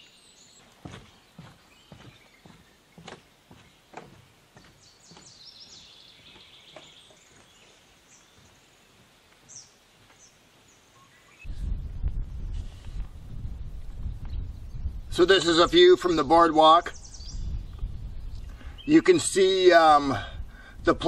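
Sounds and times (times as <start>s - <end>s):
songbirds trilling and chirping: 0.0s - 11.5s, 14.0s - 20.0s
faint footsteps: 0.6s - 14.5s
loud low-pitched noise: 11.5s - 15.1s.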